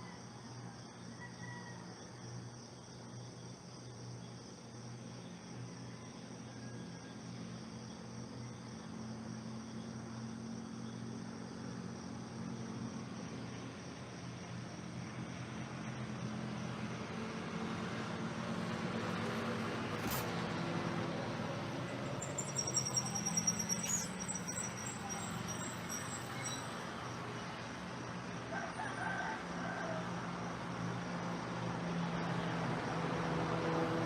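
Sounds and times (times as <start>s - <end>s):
insects chirping: 0.0s - 33.4s
motor vehicle passing: 16.6s - 25.8s
high rapid insect trill: 19.5s - 28.7s.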